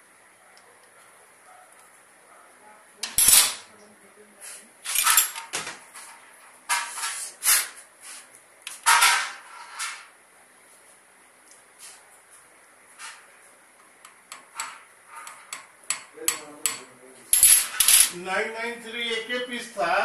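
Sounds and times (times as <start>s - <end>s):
metal tools clinking: 4.9s - 5.5s, 17.3s - 18.2s.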